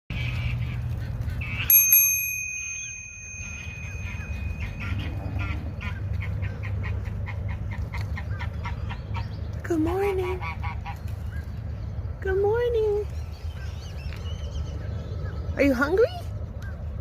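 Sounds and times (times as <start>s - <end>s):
steady low rumble: 0.1s - 15.6s
bell ringing: 1.7s - 5.7s.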